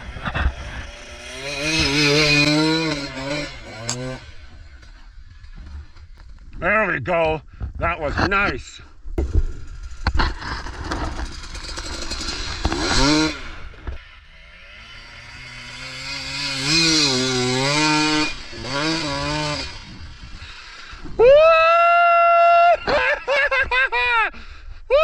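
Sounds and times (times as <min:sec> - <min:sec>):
dirt bike engine revving: 0:00.0 - 0:06.0, 0:09.2 - 0:21.0
rumbling clatter: 0:09.1 - 0:14.2.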